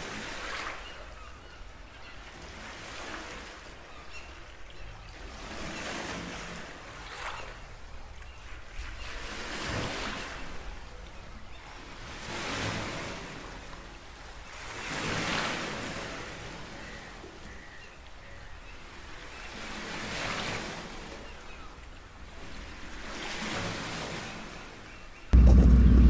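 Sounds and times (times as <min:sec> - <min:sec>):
small waves breaking on shore: 0:02.2 - 0:17.8, 0:18.8 - 0:25.0
steady low rumble: 0:25.4 - 0:26.0.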